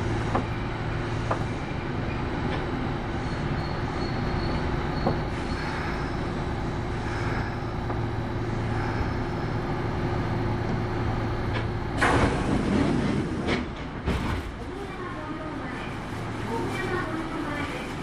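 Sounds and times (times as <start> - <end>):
train wheels and motors rumbling: 0.0 - 18.0.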